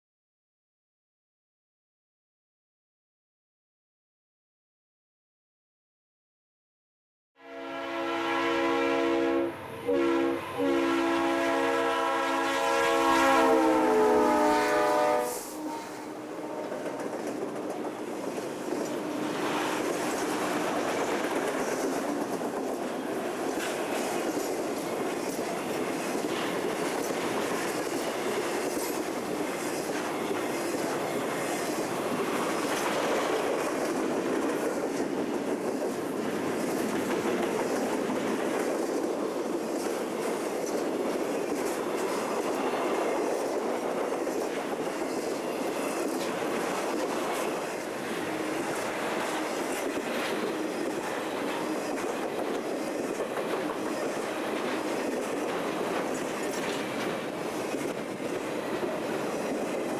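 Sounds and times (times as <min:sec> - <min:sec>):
locomotive air horn: 0:07.4 - 0:17.1
freight train rumble: 0:07.4 - 0:59.9
wheels clacking over rail joints: 0:16.7 - 0:59.9.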